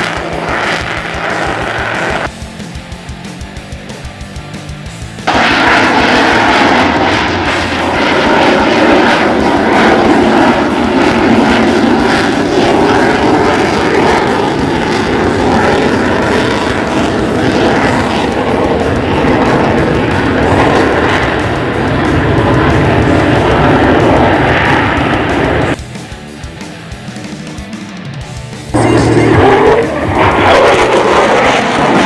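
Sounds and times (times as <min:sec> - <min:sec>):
jet engine roar in flight: 0:00.0 - 0:32.0.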